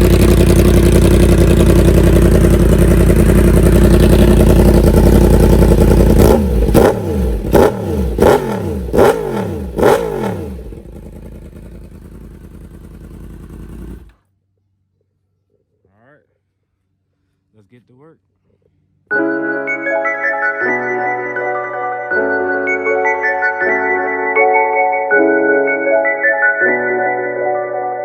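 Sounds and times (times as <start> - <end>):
motorcycle engine revving: 0.0 - 14.3.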